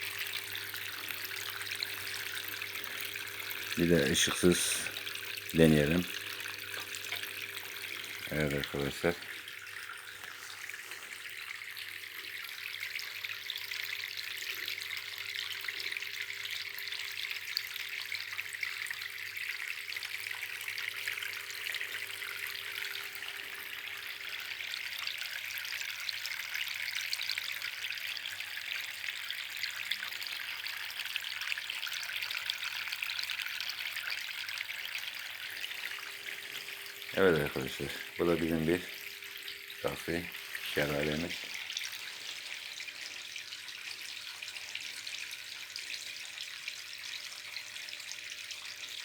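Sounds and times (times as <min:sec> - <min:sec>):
water trickling and splashing: 0:00.0 - 0:49.0.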